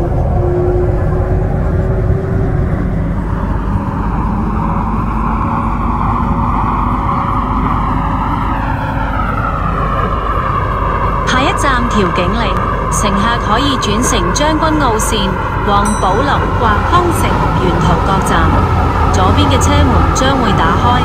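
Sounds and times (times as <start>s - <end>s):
train wheels roaring on rails: 0.0s - 21.0s.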